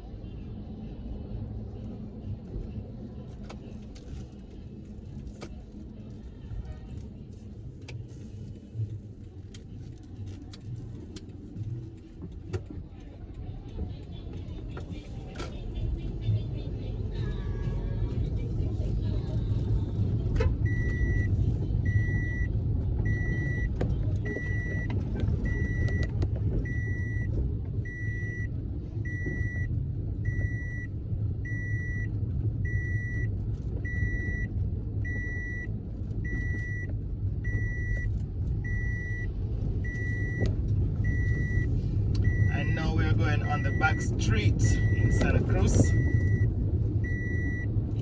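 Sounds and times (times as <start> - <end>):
car engine and road rumble: 0.0 - 48.0
electronic warning beep: 35.1 - 40.4, 41.0 - 47.6.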